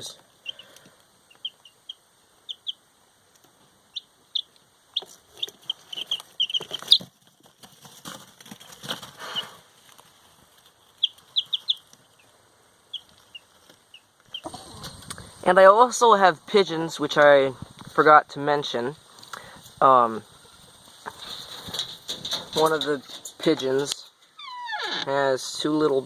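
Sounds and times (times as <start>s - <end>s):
baby chicks peeping: 0.0s - 2.8s, 3.4s - 15.4s
rustling: 4.9s - 15.5s, 19.0s - 25.2s.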